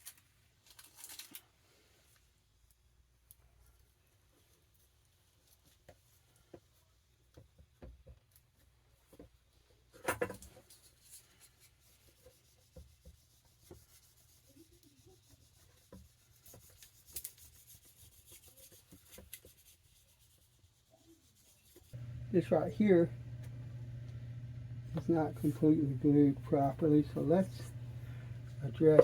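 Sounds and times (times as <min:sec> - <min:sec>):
paper crackle: 0:00.0 - 0:01.5
hands rubbing paper: 0:10.7 - 0:23.1.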